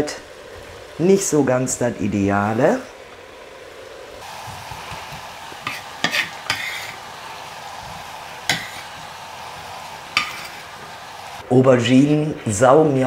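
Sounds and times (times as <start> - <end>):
vegetables sizzling in hot oil: 0.0 - 11.4
utensil knocking and scraping pot: 4.6 - 7.1, 8.4 - 10.9.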